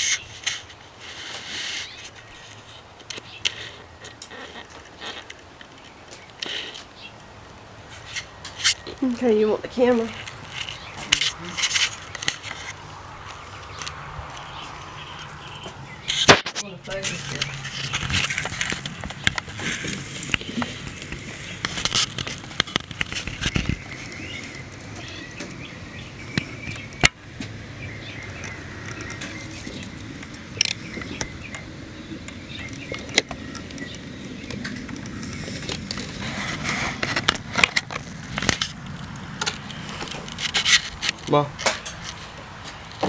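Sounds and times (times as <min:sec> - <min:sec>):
faint outdoor background: 0:00.0 - 0:43.0
camera handling clicks and rubbing: 0:10.2 - 0:14.6, 0:16.0 - 0:24.4.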